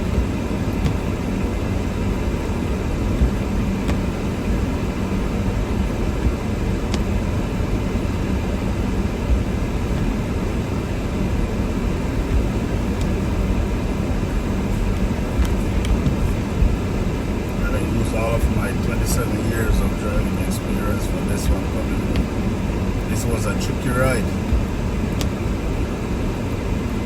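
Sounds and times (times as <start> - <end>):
car interior road rumble: 0.0 - 27.0
faint hum: 0.0 - 27.0.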